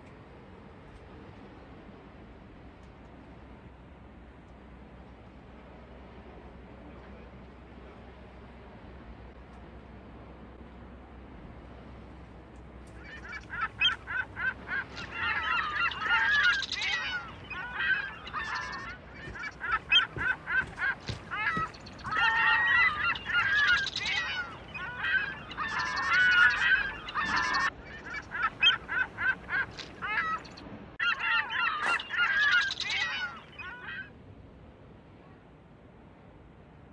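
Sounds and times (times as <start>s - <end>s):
flock of birds calling: 12.9s - 34.1s.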